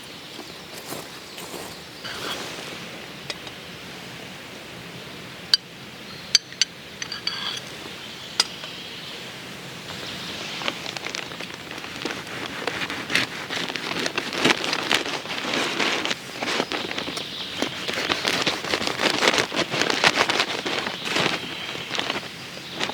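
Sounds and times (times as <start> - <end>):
wood fire crackling: 9.6 - 22.9.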